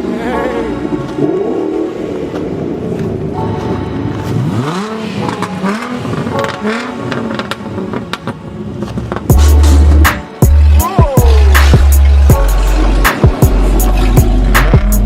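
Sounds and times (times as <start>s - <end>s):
car engine revving: 0.0s - 15.0s
loud bass-heavy music: 9.1s - 15.0s.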